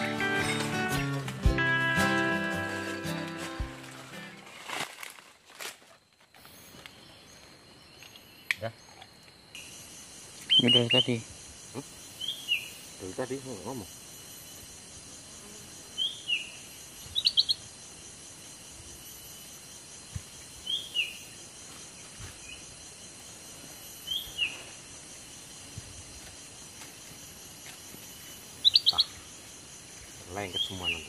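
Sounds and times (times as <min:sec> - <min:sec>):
insect drone: 0:00.0 - 0:31.0
bird chirps: 0:10.4 - 0:13.8, 0:16.0 - 0:17.6, 0:28.2 - 0:31.0.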